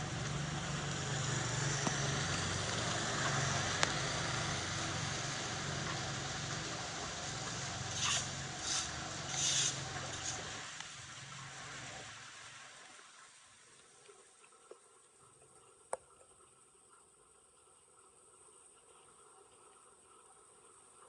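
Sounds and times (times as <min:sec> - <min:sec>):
low motor hum: 0:00.0 - 0:12.6
short swishing scrapes: 0:07.9 - 0:10.5.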